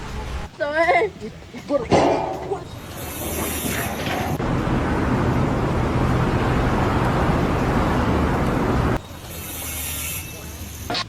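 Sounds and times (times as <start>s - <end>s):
engine rumble with low hum: 2.5s - 9.1s.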